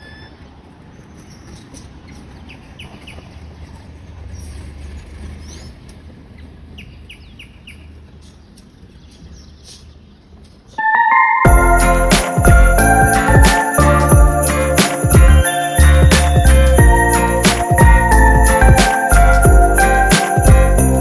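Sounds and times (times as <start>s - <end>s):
small birds chirping: 0.1s - 10.8s
steady low rumble: 11.5s - 21.0s.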